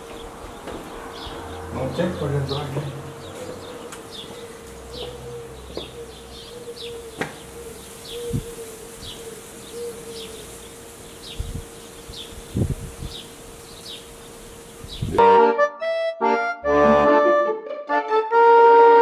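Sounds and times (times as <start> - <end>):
small bird chirping: 3.2 - 15.2.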